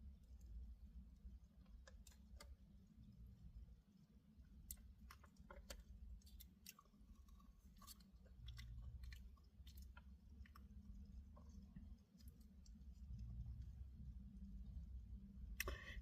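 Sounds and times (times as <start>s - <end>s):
low steady hum: 0.0s - 16.0s
mouth chewing food: 4.5s - 14.8s.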